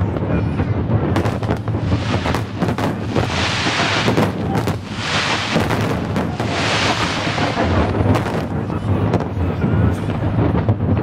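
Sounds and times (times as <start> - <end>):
low rumble: 1.1 - 9.2
fireworks shells bursting: 1.2 - 8.7
hissing crackle: 1.2 - 8.8.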